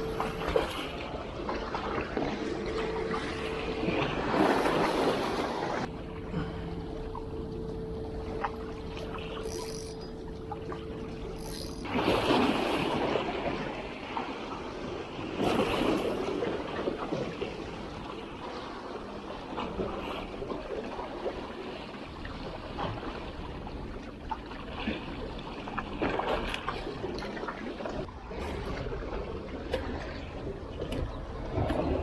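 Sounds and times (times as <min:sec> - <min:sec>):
steady hum: 0:00.0 - 0:19.6
sea waves washing ashore: 0:00.0 - 0:30.6.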